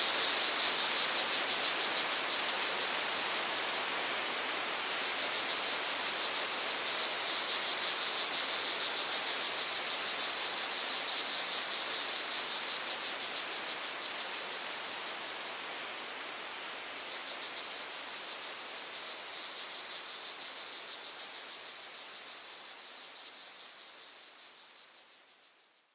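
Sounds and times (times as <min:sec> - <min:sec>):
rushing water: 0:00.0 - 0:19.3.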